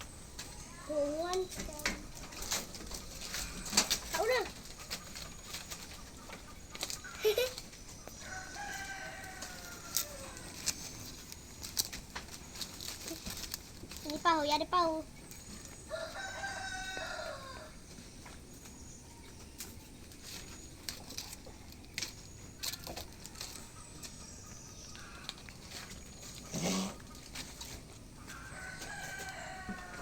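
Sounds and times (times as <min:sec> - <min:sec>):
clicks and rustles: 0:01.2 - 0:07.8, 0:09.4 - 0:15.8, 0:19.6 - 0:24.2
rooster crowing: 0:08.2 - 0:10.6, 0:15.9 - 0:17.8, 0:28.3 - 0:30.0.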